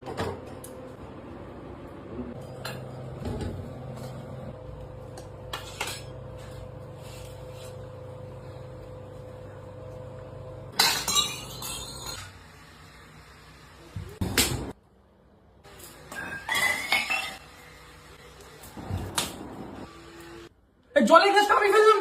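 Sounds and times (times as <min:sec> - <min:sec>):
dishes and utensils clinking: 0:10.8 - 0:12.3, 0:16.1 - 0:17.5.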